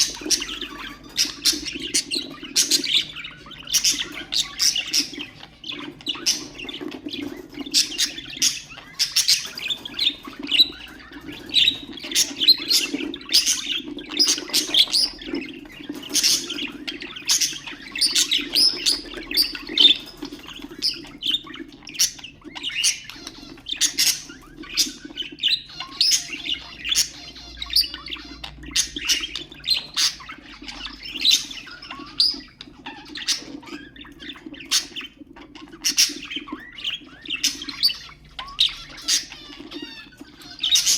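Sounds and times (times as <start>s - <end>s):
budgerigars chirping and chattering: 0.0s - 40.9s.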